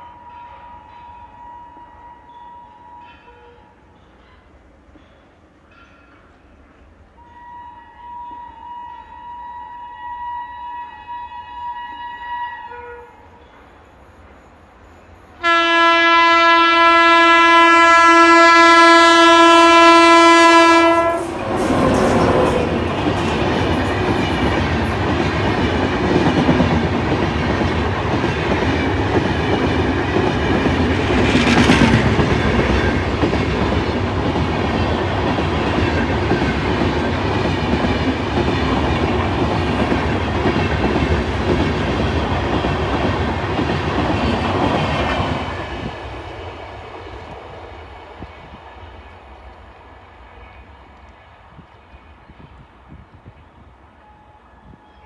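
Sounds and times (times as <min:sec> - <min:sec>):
train rumble and wheel clatter: 0:13.0 - 0:55.0
locomotive horn blast: 0:15.4 - 0:24.8.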